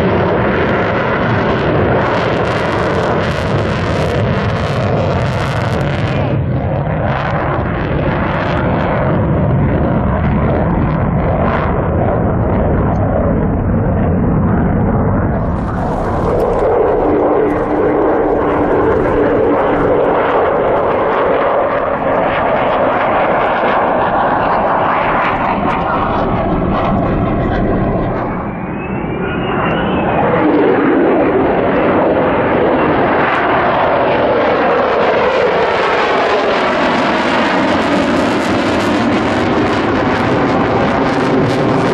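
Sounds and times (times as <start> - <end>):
fighter jets flying past: 0.0 - 41.9.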